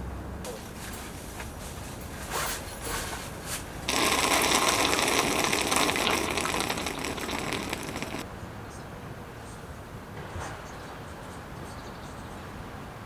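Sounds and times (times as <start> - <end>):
hot liquid pouring into mug: 3.9 - 8.2.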